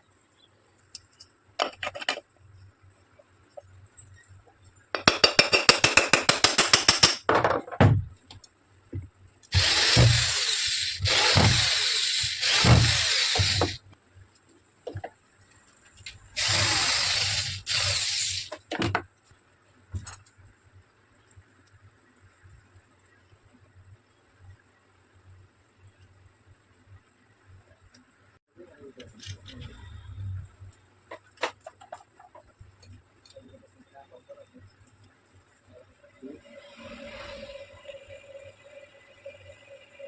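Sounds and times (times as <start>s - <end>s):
power tool running: 9.5s - 13.8s, 16.4s - 18.5s.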